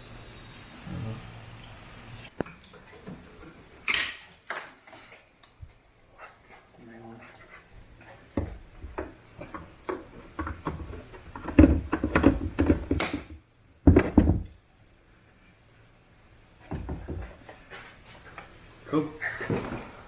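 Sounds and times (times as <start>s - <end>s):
hard parts knocking and clicking: 8.4s - 14.5s.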